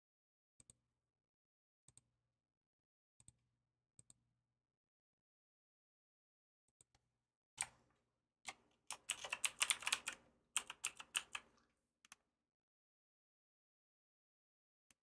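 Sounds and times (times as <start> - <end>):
computer keyboard typing: 8.5 - 11.6.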